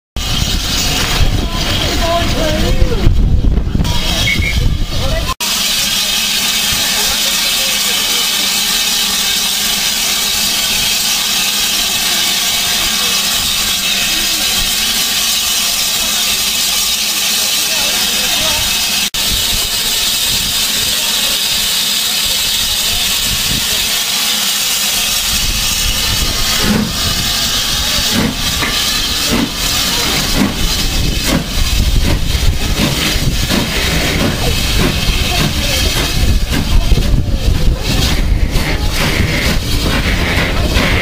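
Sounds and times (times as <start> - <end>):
steam locomotive hissing: 0.2 - 41.0
low rumble with puffs: 25.2 - 41.0.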